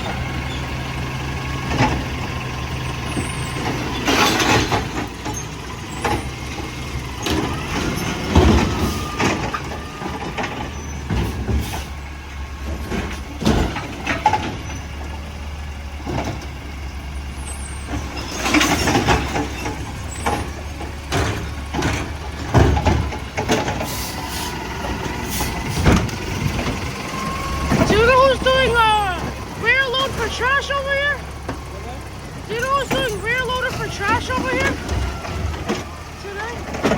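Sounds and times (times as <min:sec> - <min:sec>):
diesel truck engine running: 0:00.0 - 0:36.9
clanks and bangs: 0:03.1 - 0:11.9, 0:12.6 - 0:14.9, 0:17.8 - 0:24.0, 0:24.8 - 0:29.4, 0:31.4 - 0:36.9.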